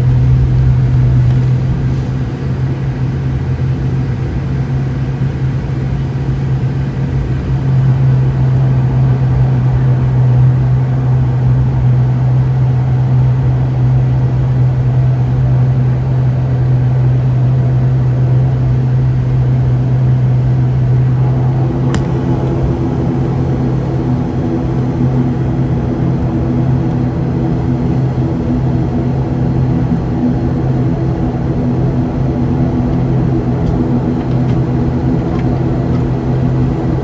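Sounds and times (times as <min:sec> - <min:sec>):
turboprop engines droning: 0:00.0 - 0:37.0
sharp click: 0:21.9 - 0:22.2.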